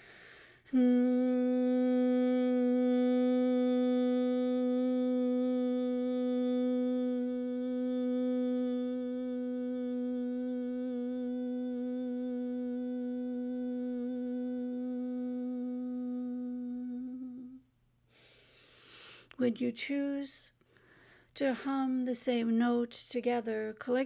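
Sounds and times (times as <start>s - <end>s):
person humming a held note: 0.7s - 17.6s.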